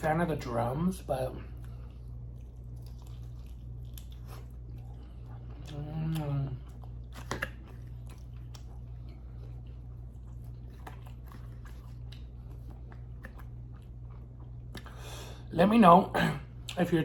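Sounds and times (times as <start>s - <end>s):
steady low hum: 0.0s - 17.0s
chewing with wet mouth clicks: 1.5s - 15.0s.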